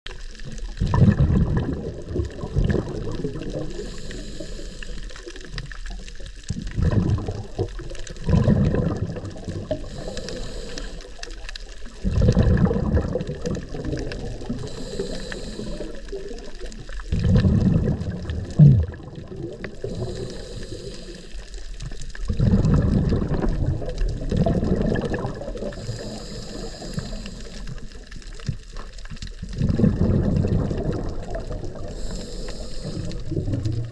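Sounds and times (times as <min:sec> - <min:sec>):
exhaled bubbles rumbling: 0:00.1 - 0:33.9
regulator hiss on inhale: 0:02.9 - 0:06.1, 0:09.6 - 0:12.0, 0:13.6 - 0:17.2, 0:19.6 - 0:22.2, 0:25.5 - 0:28.8, 0:31.2 - 0:33.9.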